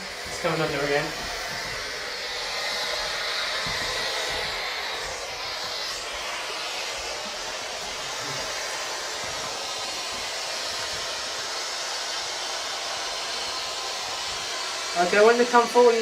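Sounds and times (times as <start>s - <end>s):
radio static hiss: 0.0s - 1.8s, 4.2s - 8.7s.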